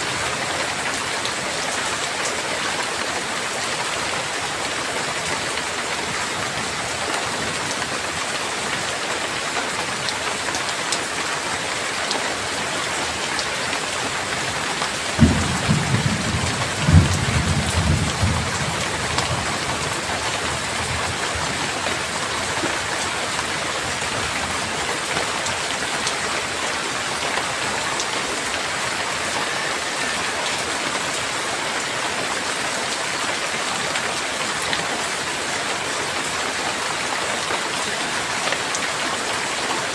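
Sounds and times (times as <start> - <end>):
heavy rain falling: 0.0 - 39.9
low thunder rumble: 15.1 - 21.2
thunder crack: 15.2 - 19.5.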